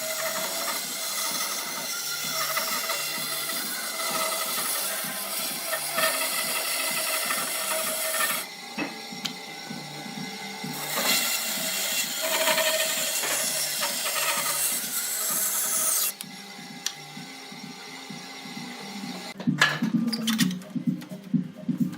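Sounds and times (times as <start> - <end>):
tool scraping wood: 0.0 - 10.1, 10.7 - 16.2.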